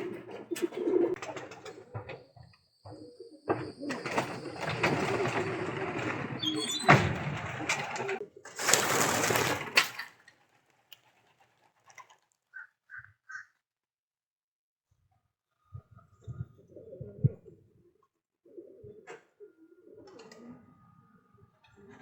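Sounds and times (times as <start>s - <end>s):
pigeons cooing: 0.0s - 6.7s, 15.6s - 22.0s
dense rustling: 7.1s - 9.8s
faint short bird calls: 12.5s - 13.6s.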